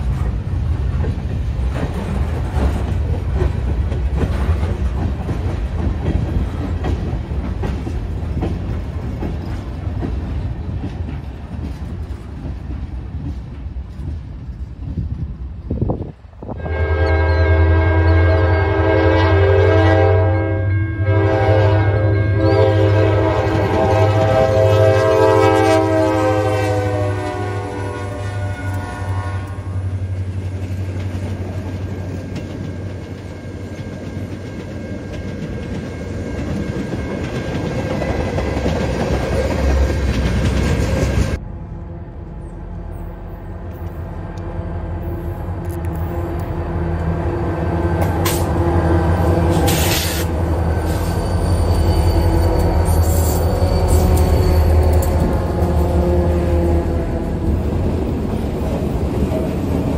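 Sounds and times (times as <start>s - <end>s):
train wheels clattering on rails: 0.0s - 16.2s, 29.7s - 41.4s, 47.8s - 59.9s
locomotive engines droning: 0.0s - 59.9s
locomotive air horn: 16.5s - 30.0s, 44.5s - 57.5s.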